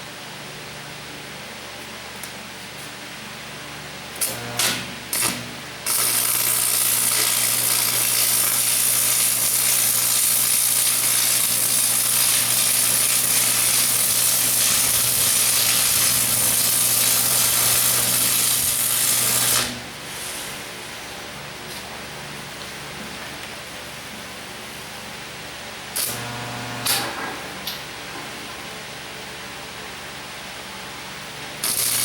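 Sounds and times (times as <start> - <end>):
arc welding: 4.2 - 20.5, 25.9 - 27.8, 31.6 - 32.0.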